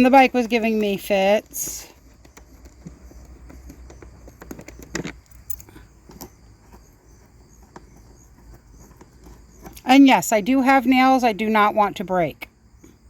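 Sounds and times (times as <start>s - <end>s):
hands clicking and scraping parts: 0.5s - 9.9s.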